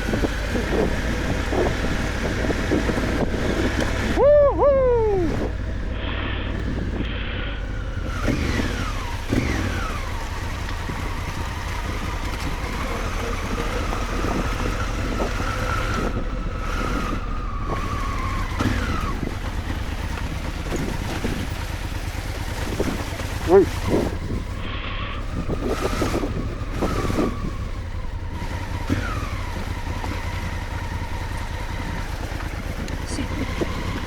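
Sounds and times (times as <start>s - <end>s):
motorcycle engine: 0.0s - 34.0s
wind rumble on microphone: 0.0s - 34.0s.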